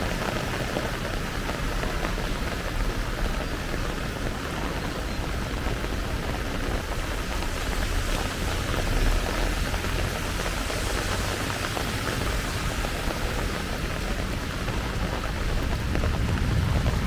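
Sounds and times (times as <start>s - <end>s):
heavy rain falling: 0.0s - 17.0s
low rumble: 15.3s - 17.0s.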